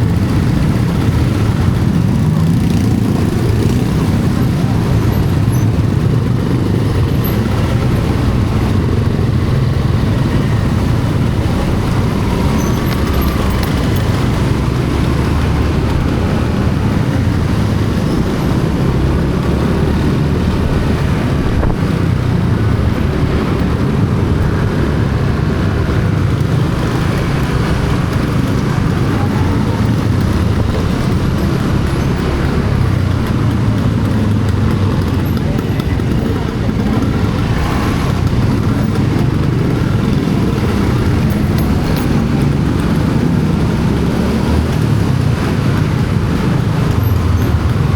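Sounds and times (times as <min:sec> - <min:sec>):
traffic rumble: 0:00.0 - 0:47.9.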